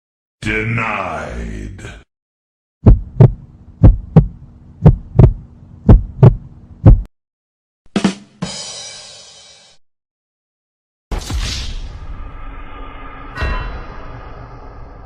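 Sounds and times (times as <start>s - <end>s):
heartbeat thumps: 2.8s - 7.1s
shimmering sound: 12.7s - 15.0s.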